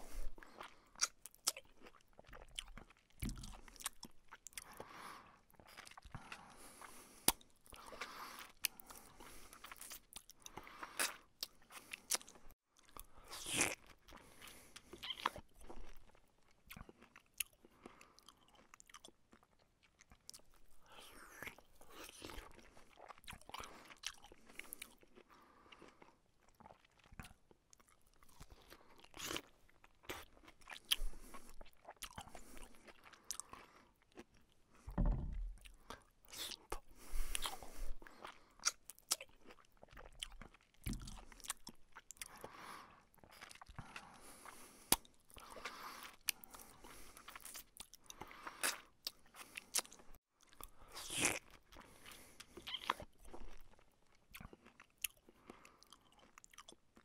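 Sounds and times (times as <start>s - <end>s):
chewing and crunching fried fish: 0.0s - 34.9s, 35.5s - 57.0s
dull low thumps: 34.9s - 35.7s.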